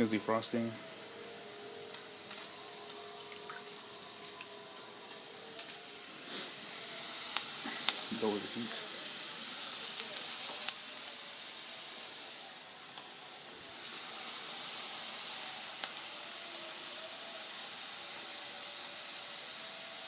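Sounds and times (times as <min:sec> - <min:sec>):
vegetables sizzling in a pot: 0:00.0 - 0:20.0.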